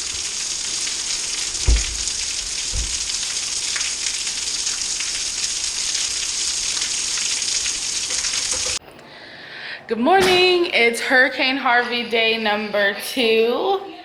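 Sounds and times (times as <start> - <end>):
low thumps: 0.0 - 5.3
heavy rain falling: 0.0 - 8.8.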